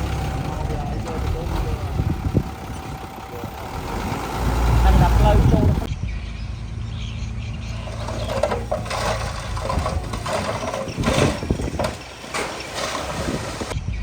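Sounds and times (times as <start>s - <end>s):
clattering working noise: 0.0s - 5.9s, 7.7s - 13.8s
diesel engine running: 0.0s - 5.9s, 6.6s - 13.8s.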